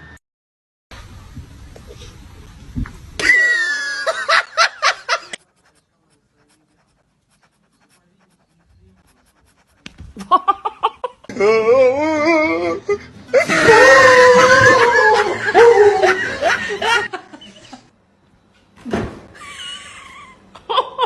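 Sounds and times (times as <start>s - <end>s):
human laughter in quick pulses: 10.2s - 11.3s.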